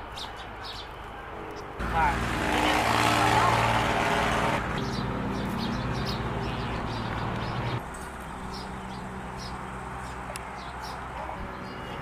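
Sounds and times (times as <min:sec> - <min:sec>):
small birds chirping: 0:00.0 - 0:01.8, 0:04.7 - 0:12.0.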